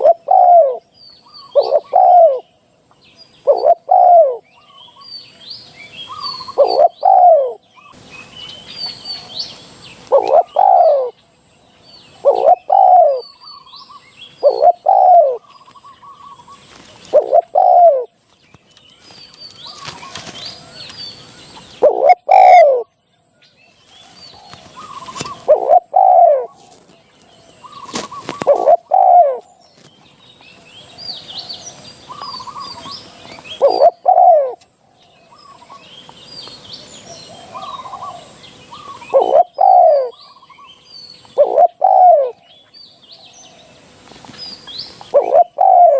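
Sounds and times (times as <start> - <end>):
dove cooing: 0.0 - 2.6, 3.4 - 5.1, 6.0 - 8.0, 10.0 - 11.2, 12.1 - 18.2, 21.6 - 22.9, 24.3 - 29.9, 30.8 - 35.9, 36.8 - 42.5, 45.0 - 45.9
small birds chirping: 0.0 - 45.9.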